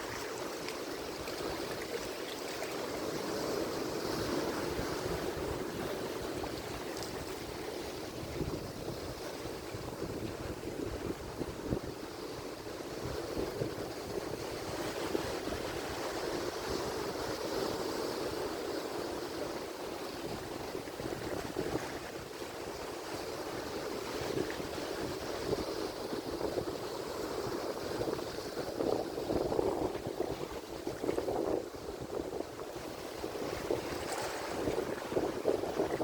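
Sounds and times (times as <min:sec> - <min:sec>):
waves breaking: 0:00.0 - 0:36.0
wind buffeting microphone: 0:03.2 - 0:18.4, 0:24.1 - 0:36.0.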